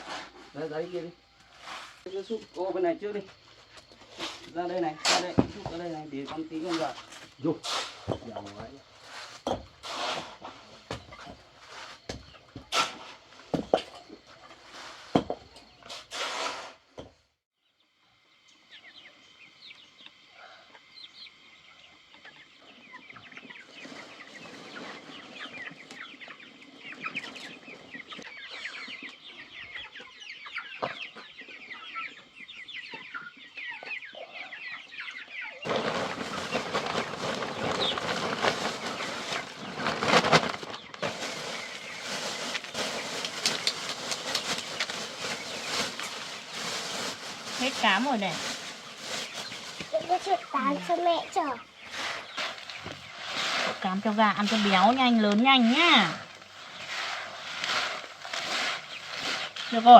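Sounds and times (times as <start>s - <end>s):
chickens clucking: 0.0s - 16.1s, 18.5s - 59.9s
chicks peeping: 18.6s - 59.9s.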